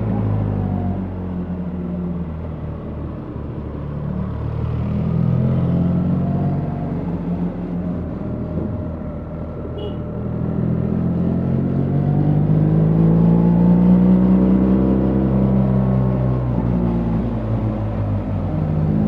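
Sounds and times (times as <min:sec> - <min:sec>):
motorcycle engine accelerating: 0:04.2 - 0:19.0.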